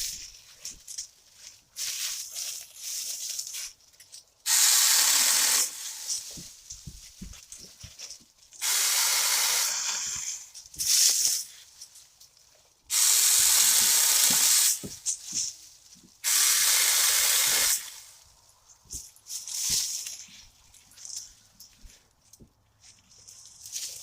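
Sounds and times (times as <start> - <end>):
chainsaw cutting branches: 4.4 - 11.5, 12.9 - 15.6, 16.2 - 18.2.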